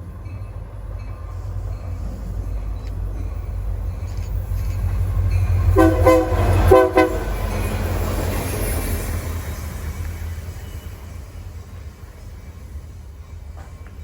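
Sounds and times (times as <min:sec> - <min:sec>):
low rumble of passing train: 0:00.0 - 0:14.0
train horn blasts: 0:05.7 - 0:07.5.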